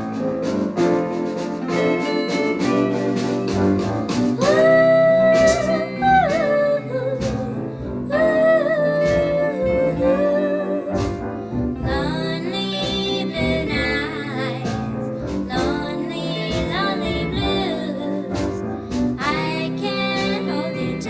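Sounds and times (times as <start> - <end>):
band with steady beat: 0.0 - 8.4, 9.0 - 14.0, 14.6 - 21.0
singer holding long notes: 4.4 - 21.0.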